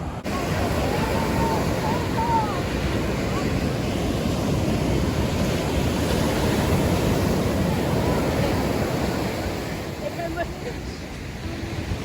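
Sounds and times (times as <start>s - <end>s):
ocean surf on sandy beach: 0.0s - 12.0s
wind buffeting microphone: 0.0s - 12.0s.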